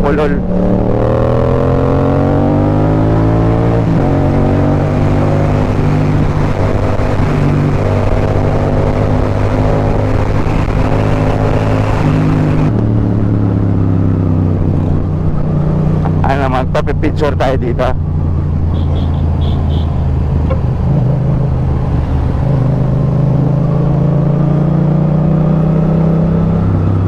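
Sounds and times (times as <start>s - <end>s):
wind noise: 0.0s - 16.2s
motorcycle engine accelerating: 0.0s - 27.0s.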